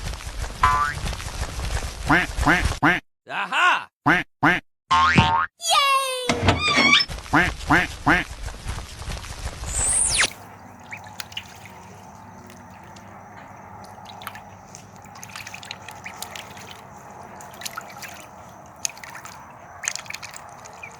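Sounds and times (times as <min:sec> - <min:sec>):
water dripping and trickling: 0:10.3 - 0:20.9
small clicks and drips: 0:10.7 - 0:20.9.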